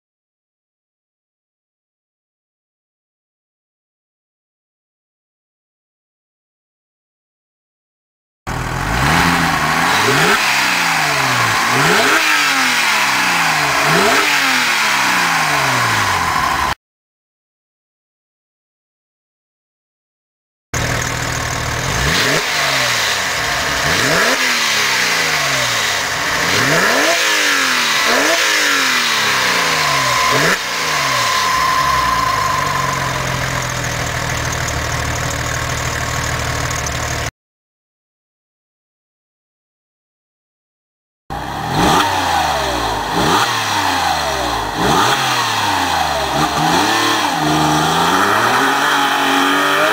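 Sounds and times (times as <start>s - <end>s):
sports car engine revving: 8.5s - 16.7s, 20.8s - 36.9s, 41.3s - 49.9s.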